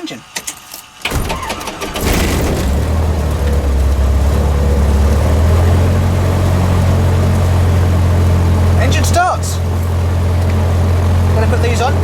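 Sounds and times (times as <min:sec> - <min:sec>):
aircraft engine starting: 0:01.0 - 0:12.0.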